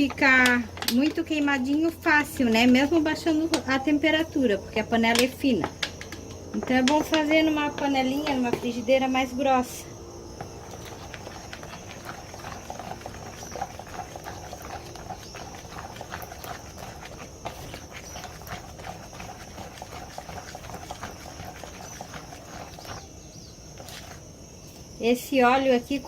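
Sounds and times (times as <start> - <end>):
oil crackling and sizzling in pan: 10.5 - 23.1.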